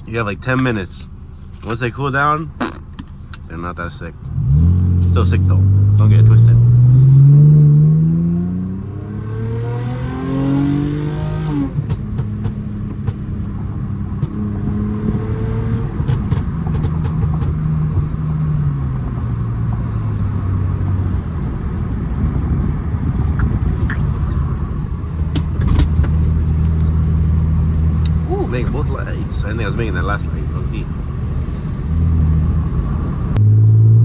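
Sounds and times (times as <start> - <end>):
car exhaust accelerating: 0.0 - 34.0.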